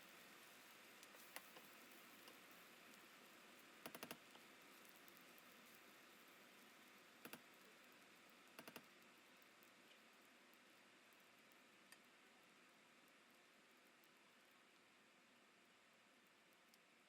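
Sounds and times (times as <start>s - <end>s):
faint steady hiss: 0.0s - 17.0s
faint clicks: 3.8s - 5.8s, 7.2s - 14.8s, 16.2s - 16.9s.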